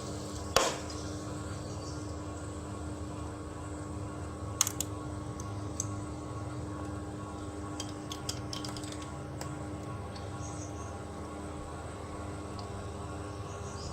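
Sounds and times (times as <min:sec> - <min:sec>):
air conditioner hum: 0:00.0 - 0:13.9
sharp clicks and ticks: 0:07.8 - 0:10.3.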